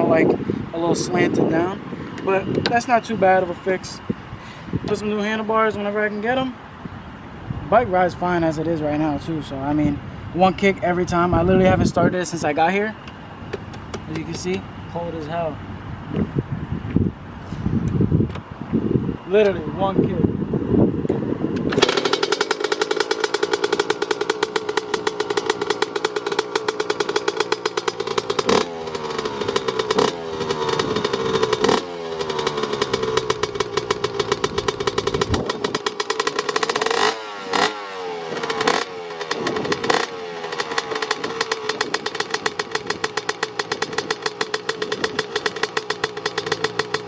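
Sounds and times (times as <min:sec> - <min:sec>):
dirt bike engine revving and idling: 0:00.0 - 0:04.0, 0:07.7 - 0:15.5, 0:21.6 - 0:47.0.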